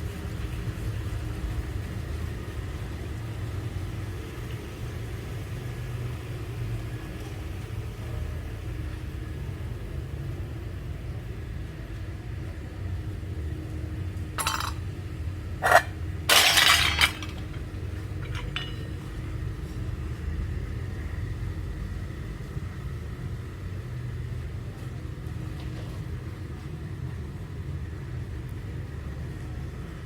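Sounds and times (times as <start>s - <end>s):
metal clinks: 14.4s - 14.8s, 15.6s - 19.0s
metal pieces clattering: 14.4s - 14.8s, 15.6s - 18.9s.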